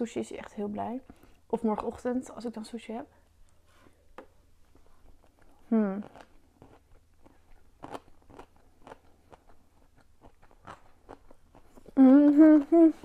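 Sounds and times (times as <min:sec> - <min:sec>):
chewing crunches: 0:05.2 - 0:12.0
woman humming: 0:05.7 - 0:06.1, 0:11.9 - 0:13.0.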